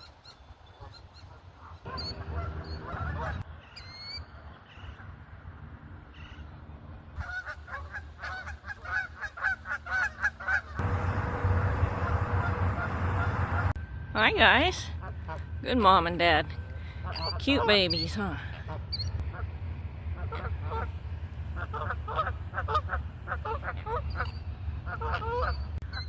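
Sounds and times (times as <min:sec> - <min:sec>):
geese honking: 0:00.8 - 0:03.8, 0:07.2 - 0:16.4, 0:17.0 - 0:19.5, 0:20.1 - 0:26.0
steady low rumble: 0:01.9 - 0:03.5, 0:10.8 - 0:25.8.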